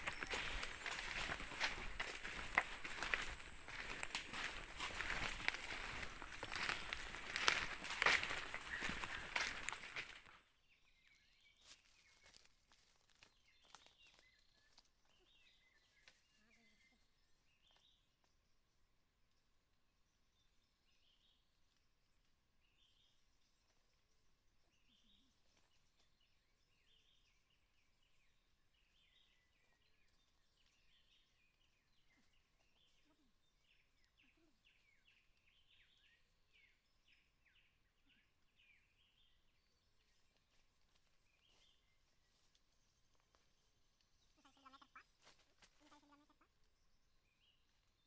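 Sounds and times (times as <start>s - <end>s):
bird chirps: 43.6s - 46.5s.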